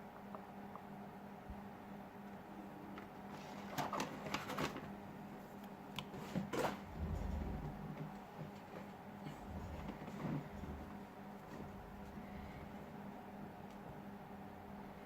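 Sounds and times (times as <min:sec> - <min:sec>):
brief low rumble: 0:06.9 - 0:08.0.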